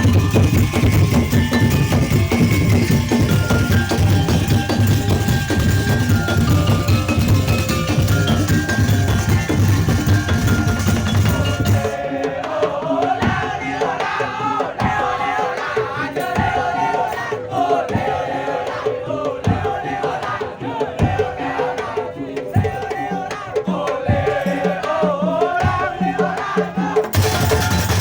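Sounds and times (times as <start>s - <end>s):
wavering melody line: 0.0s - 12.0s
drums: 0.0s - 28.0s
struck wooden rhythm: 0.0s - 28.0s.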